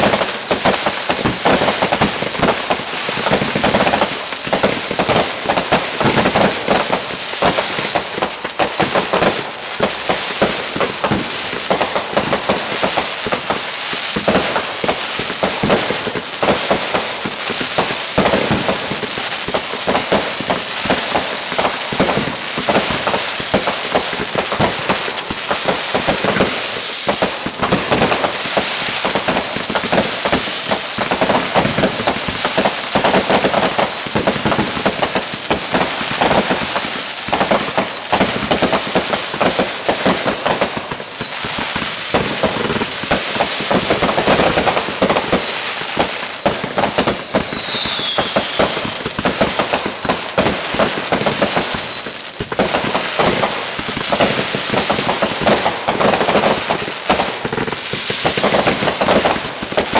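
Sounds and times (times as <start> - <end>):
falling whistle: 0.0 - 1.7, 2.4 - 13.9, 19.4 - 50.2, 50.9 - 52.0, 53.3 - 54.0
fireworks crackling and banging: 0.0 - 59.9.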